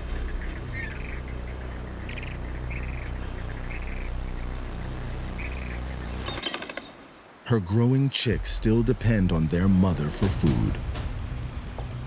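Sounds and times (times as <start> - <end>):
steady low hum: 0.0 - 6.4, 8.3 - 12.0
flamingos calling: 0.0 - 7.0.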